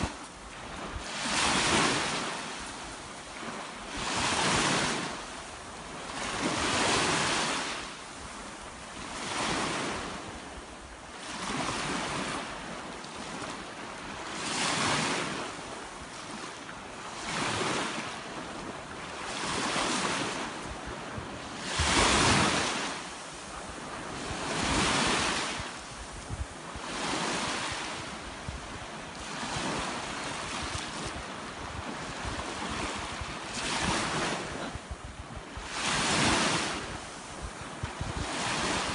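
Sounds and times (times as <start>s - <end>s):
sea waves breaking on shore: 0.0s - 38.9s.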